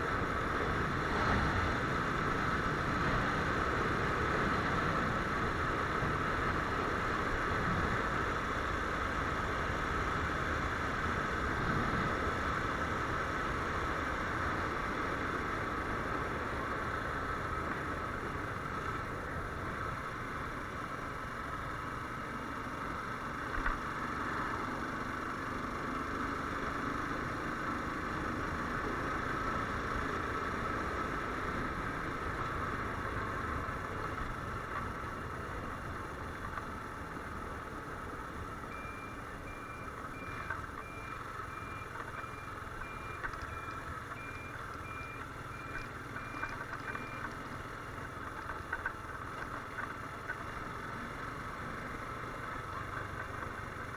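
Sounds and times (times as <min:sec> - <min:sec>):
road noise: 0:00.0 - 0:53.9
repeating beep: 0:38.7 - 0:46.4.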